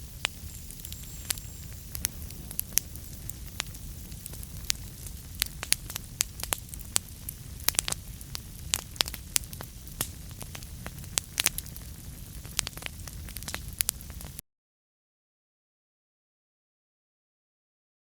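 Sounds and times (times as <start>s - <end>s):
low rumble of flames: 0.0s - 14.4s
wood fire crackling and popping: 0.0s - 14.4s.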